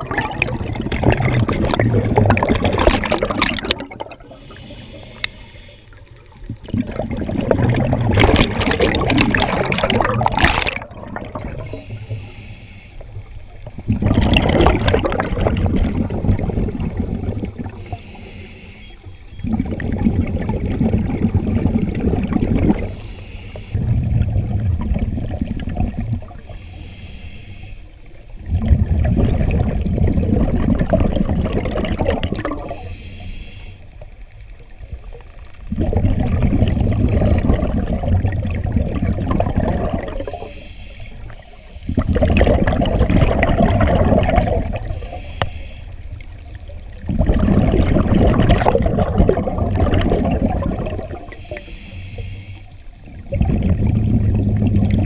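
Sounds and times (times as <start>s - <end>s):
exhaled bubbles rushing: 0.0s - 4.6s, 6.3s - 12.1s, 13.6s - 17.9s, 19.4s - 23.0s, 23.7s - 26.6s, 28.4s - 32.9s, 34.8s - 40.5s, 41.2s - 45.2s, 46.1s - 51.6s, 53.0s - 55.0s
regulator hissing inhale: 4.2s - 6.3s, 11.6s - 13.5s, 17.7s - 19.3s, 22.9s - 23.8s, 26.5s - 28.3s, 32.6s - 34.2s, 40.1s - 42.2s, 44.8s - 46.3s, 51.1s - 53.0s.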